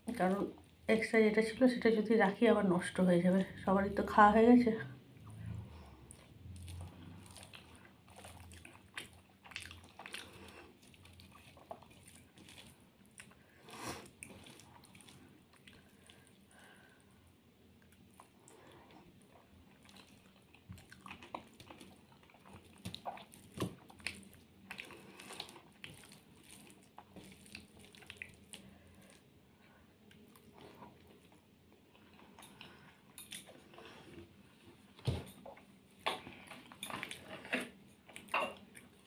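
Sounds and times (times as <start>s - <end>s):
wet chewing: 5.2s - 34.4s.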